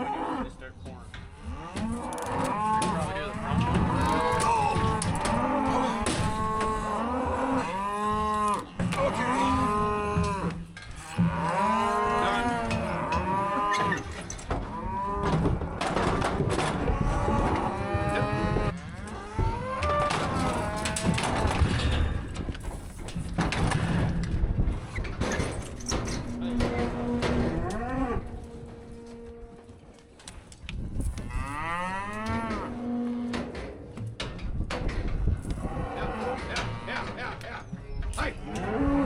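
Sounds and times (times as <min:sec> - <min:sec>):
cattle mooing and bawling: 0:00.0 - 0:00.6, 0:01.3 - 0:22.2, 0:25.3 - 0:29.8, 0:31.1 - 0:33.8, 0:35.4 - 0:37.2, 0:38.3 - 0:39.0.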